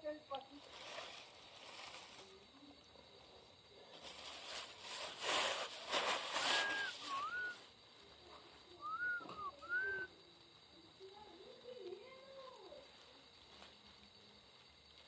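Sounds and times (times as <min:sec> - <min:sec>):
bonfire crackling and rushing: 0:03.6 - 0:15.0
short sliding whistled notes: 0:06.3 - 0:07.6, 0:08.8 - 0:10.1.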